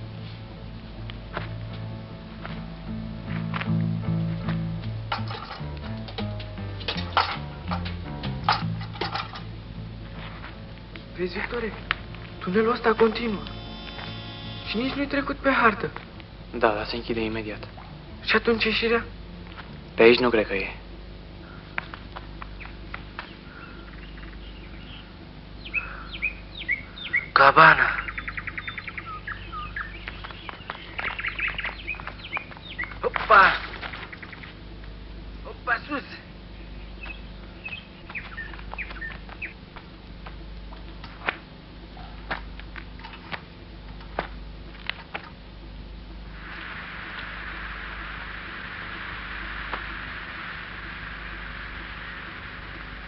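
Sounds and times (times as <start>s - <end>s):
birds chirping: 0.0s - 42.2s
faint steady hum: 0.0s - 53.0s
bird chirps: 22.6s - 34.6s, 36.5s - 39.6s.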